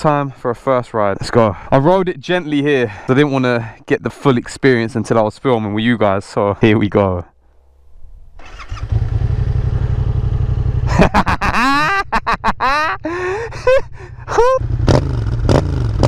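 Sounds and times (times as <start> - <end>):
motorcycle engine idling and revving: 7.6 - 11.5, 13.1 - 16.0.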